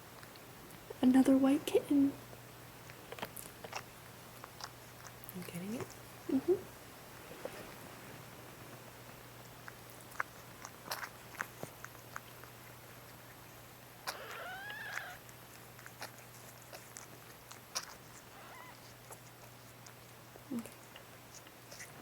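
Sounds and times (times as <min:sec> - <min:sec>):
cat mewing: 0:14.0 - 0:15.2, 0:18.3 - 0:18.9.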